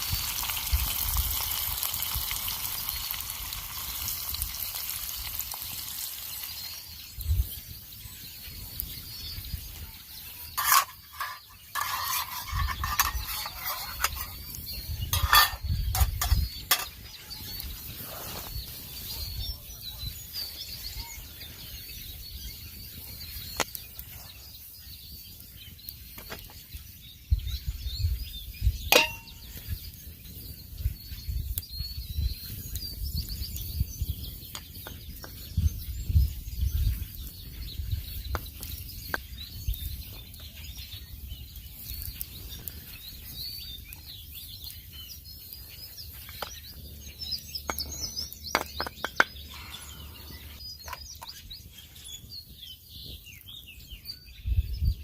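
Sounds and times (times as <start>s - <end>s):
small birds chirping: 0.0s - 55.0s
ringing metallic clink: 29.0s - 29.4s.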